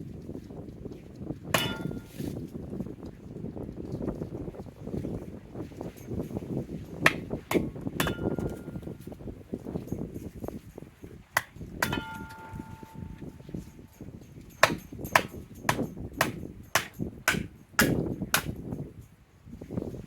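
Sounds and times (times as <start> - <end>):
axe hammering wood on blade: 1.6 - 2.3, 7.0 - 8.6, 11.4 - 12.9, 14.6 - 18.6
metallic ring: 1.6 - 2.3, 8.0 - 9.1, 11.8 - 17.7.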